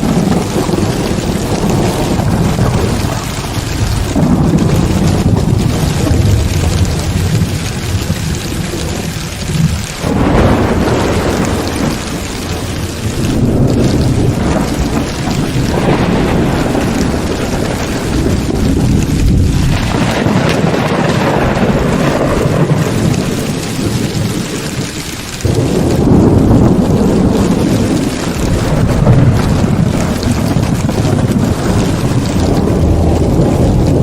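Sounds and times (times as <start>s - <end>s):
heavy rain pouring: 0.0s - 34.0s
thunder rumbling: 0.0s - 34.0s.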